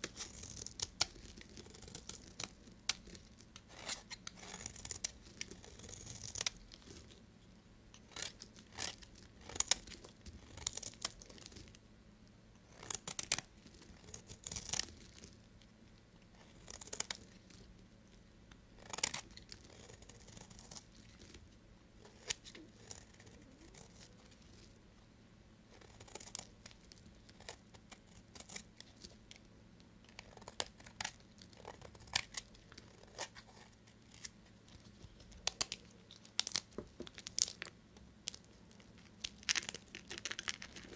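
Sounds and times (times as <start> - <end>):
knife cutting dry soap: 0.0 - 7.0, 30.2 - 35.8.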